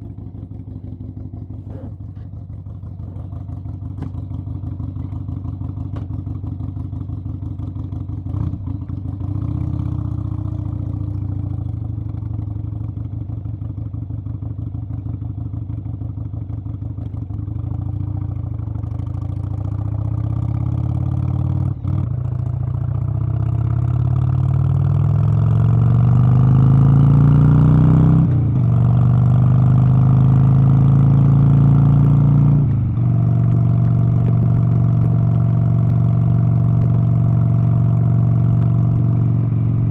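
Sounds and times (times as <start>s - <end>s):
engine running: 0.0s - 5.2s, 30.6s - 39.9s.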